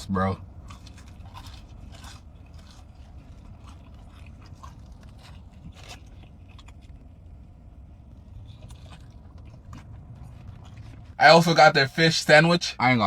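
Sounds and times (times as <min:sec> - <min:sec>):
chewing with soft crunches: 0:00.0 - 0:11.8
low background hum: 0:00.0 - 0:13.0.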